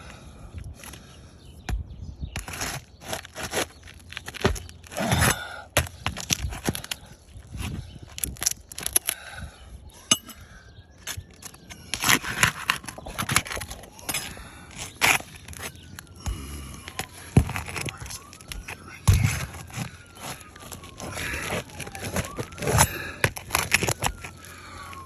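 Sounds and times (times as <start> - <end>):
roof shingles cracking and tearing: 2.4 - 9.2, 11.0 - 25.0.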